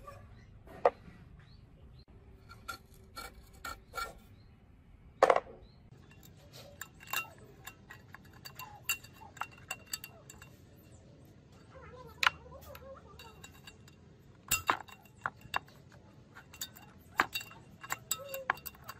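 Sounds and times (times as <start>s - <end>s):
metal engine parts clinking: 5.9s - 18.9s.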